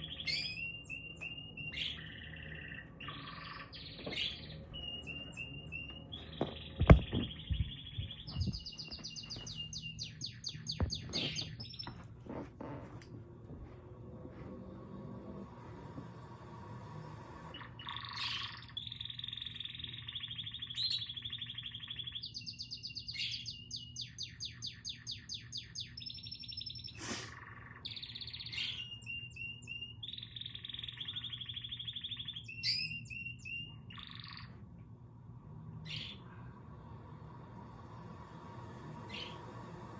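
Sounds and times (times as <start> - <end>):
songbird singing: 0.0 - 12.9, 17.5 - 34.7, 35.8 - 36.4, 38.9 - 39.9.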